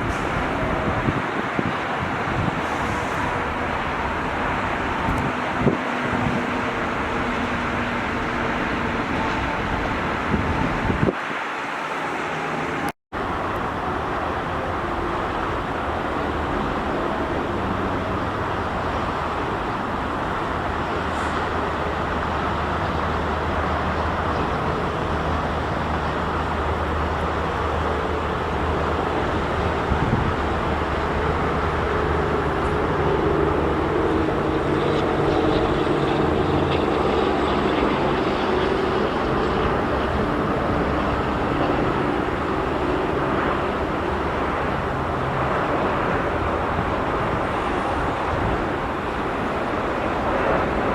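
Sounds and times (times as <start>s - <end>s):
engine humming: 12.0s - 50.9s.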